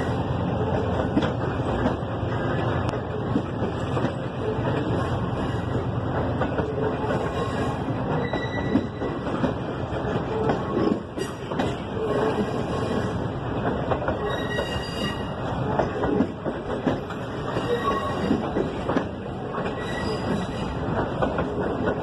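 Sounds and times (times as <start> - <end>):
rail clicks: 0.0 - 22.0
train wheels rumbling on track: 0.0 - 22.0
faint wheel squeal: 7.2 - 9.2, 14.2 - 15.4, 17.5 - 18.6, 19.7 - 20.8.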